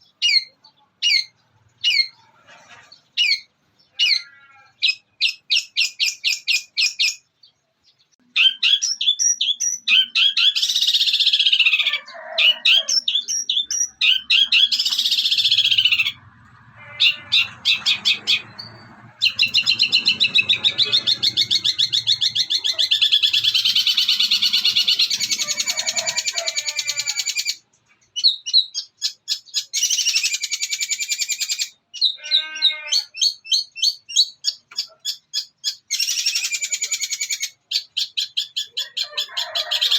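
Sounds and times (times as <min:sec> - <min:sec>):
mimicked sparrow fighting calls: 0:00.0 - 0:07.2, 0:08.3 - 0:39.9
shrike singing chattering song: 0:08.2 - 0:39.6.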